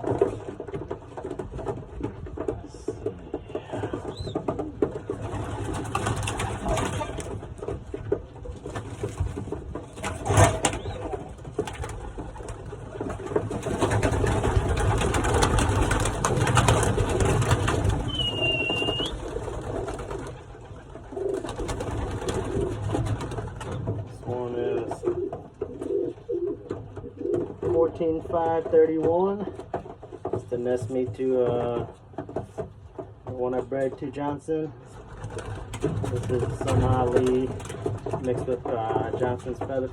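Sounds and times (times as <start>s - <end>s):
pigeons cooing: 0.0s - 28.6s
rustling and clicking: 0.0s - 39.9s.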